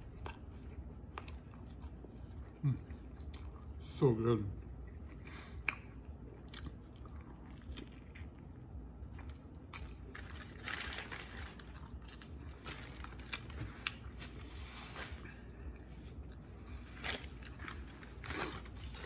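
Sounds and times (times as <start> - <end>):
chewing with wet smacks: 0.0 - 14.2.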